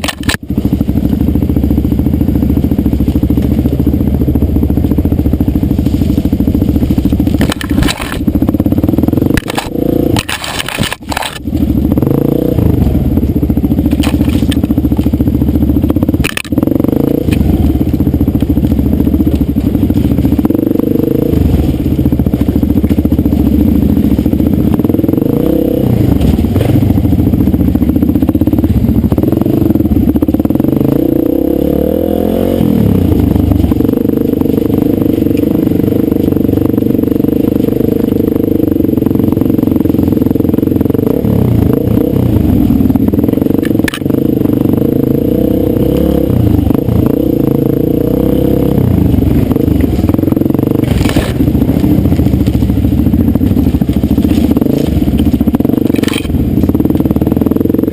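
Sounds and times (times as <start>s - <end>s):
sharp click: 0.0s - 0.4s, 9.3s - 11.4s, 16.2s - 16.6s
dirt bike engine running: 0.0s - 57.9s.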